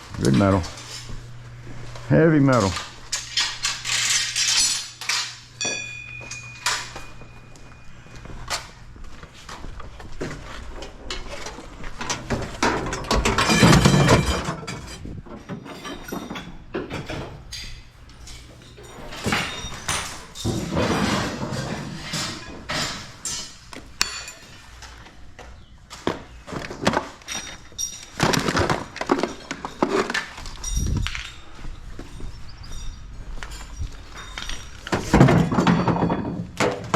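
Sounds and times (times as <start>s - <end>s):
scrap metal clanking: 10.4s - 25.0s.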